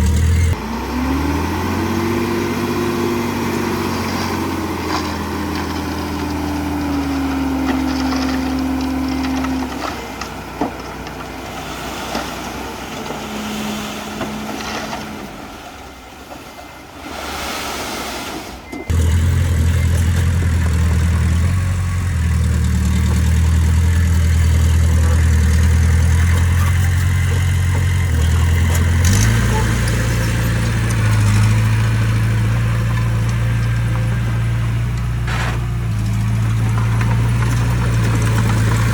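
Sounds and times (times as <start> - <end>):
diesel engine low drone: 0.0 - 16.4, 18.8 - 38.9
scraping noise: 35.2 - 38.9.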